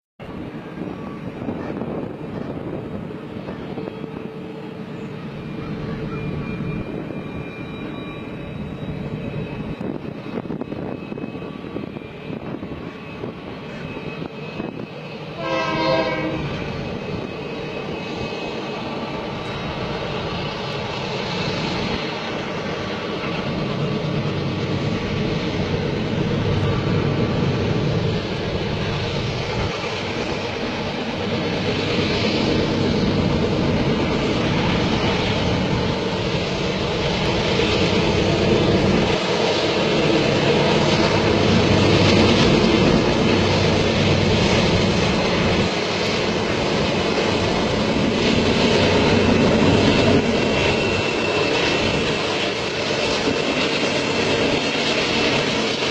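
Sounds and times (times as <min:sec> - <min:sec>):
train rumbling: 0:00.2 - 0:55.9
train horn blast: 0:15.3 - 0:16.7.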